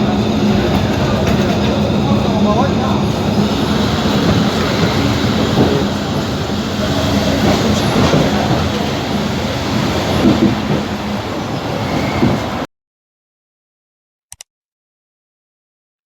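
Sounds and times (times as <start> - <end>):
train rumbling on rails: 0.0 - 12.7.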